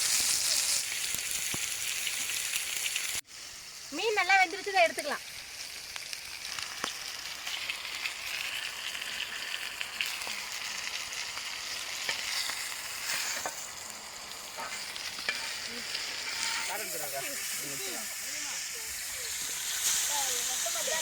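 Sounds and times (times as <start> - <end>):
fish sizzling in oil: 0.0 - 21.0
sharp ticks and crackles: 3.9 - 13.0.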